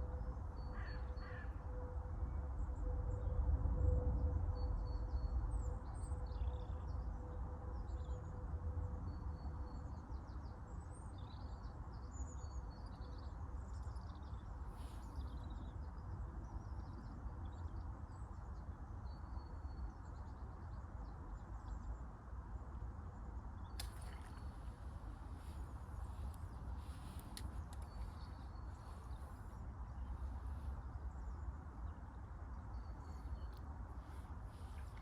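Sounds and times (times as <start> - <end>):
small birds chirping: 23.8 - 35.0.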